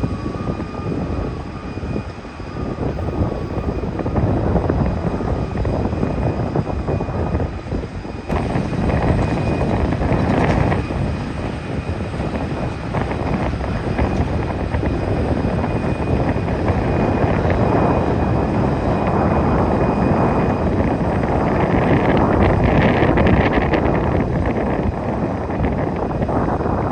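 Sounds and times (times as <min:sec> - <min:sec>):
jet airliner engines rumbling: 0:00.0 - 0:26.9.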